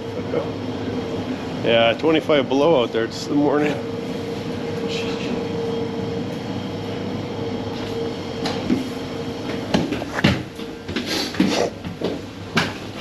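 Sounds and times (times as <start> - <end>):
ventilation hum: 0.0 - 13.0.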